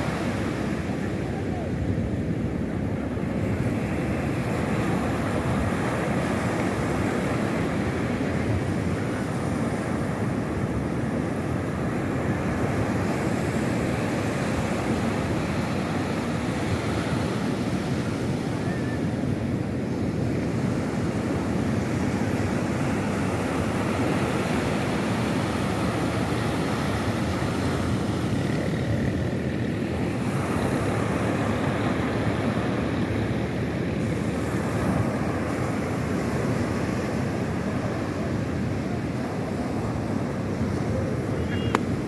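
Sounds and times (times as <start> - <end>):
sea surf washing: 0.0 - 42.0.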